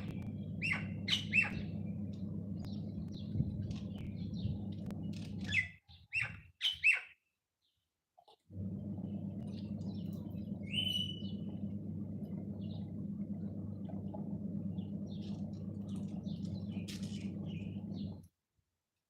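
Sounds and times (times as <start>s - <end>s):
steady low hum: 0.0s - 5.6s, 8.5s - 18.3s
birds chirping and twittering: 0.0s - 7.8s, 8.7s - 18.3s
clear bird whistle: 10.6s - 11.4s.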